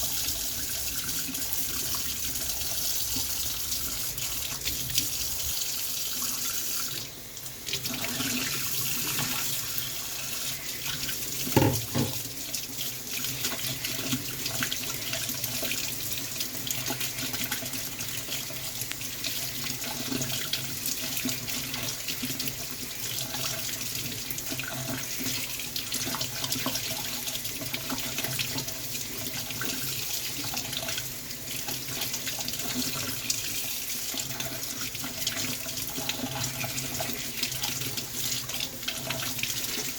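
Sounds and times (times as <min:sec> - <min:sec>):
tap water running into sink: 0:00.0 - 0:39.9
knock: 0:11.6 - 0:12.2.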